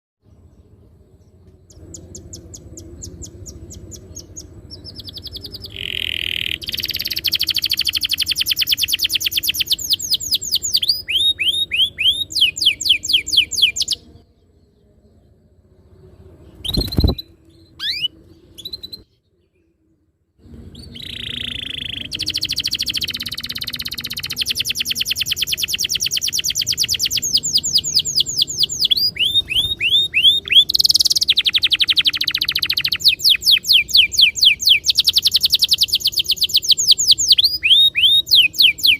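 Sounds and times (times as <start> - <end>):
canary trilling: 1.7 - 14.0, 16.6 - 19.0, 20.8 - 38.9
short bird chirps: 16.5 - 19.7, 20.5 - 38.9.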